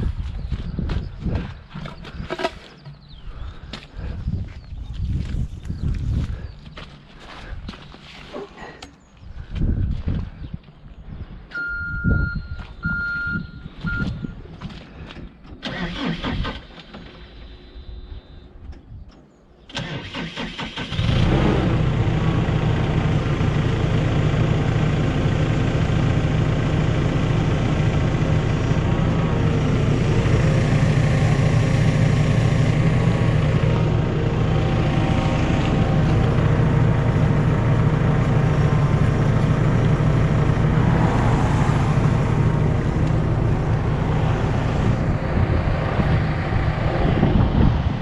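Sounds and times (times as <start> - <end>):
short high beeps: 11.6 - 14.3
machine engine running: 21.6 - 48.0.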